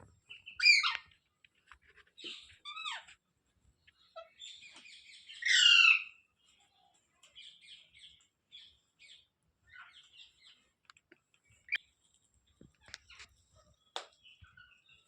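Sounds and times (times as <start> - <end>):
parrot chirps and calls: 0.3 - 1.2, 2.1 - 3.2, 4.0 - 6.3, 7.3 - 10.6.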